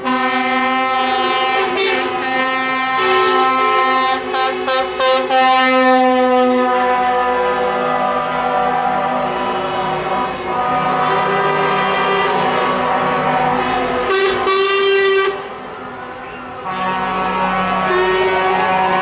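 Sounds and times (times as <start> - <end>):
truck air horns blasting: 0.0 - 19.0.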